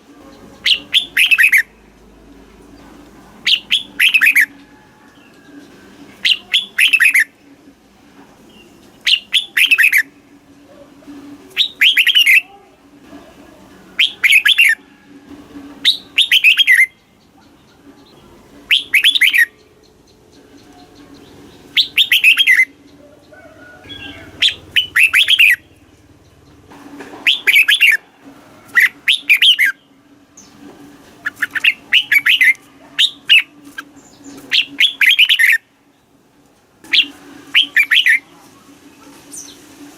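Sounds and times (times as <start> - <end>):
bird warbling song: 0.3 - 1.8, 3.4 - 4.6, 5.2 - 7.3, 8.5 - 10.1, 11.5 - 12.5, 14.0 - 14.8, 15.8 - 28.0, 28.7 - 30.6, 31.2 - 35.7, 36.9 - 38.3.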